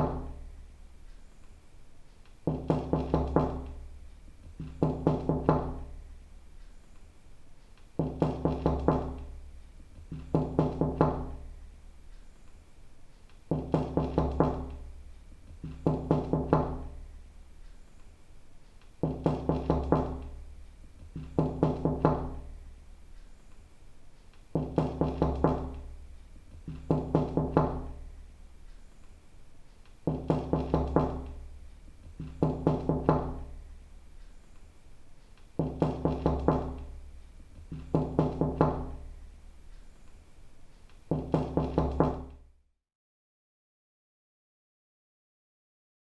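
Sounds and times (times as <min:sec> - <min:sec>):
knocking on a door: 0:00.0 - 0:00.5, 0:02.4 - 0:06.1, 0:08.0 - 0:11.6, 0:13.5 - 0:17.1, 0:19.0 - 0:22.6, 0:24.5 - 0:28.2, 0:30.0 - 0:33.8, 0:35.6 - 0:39.2, 0:41.1 - 0:42.5.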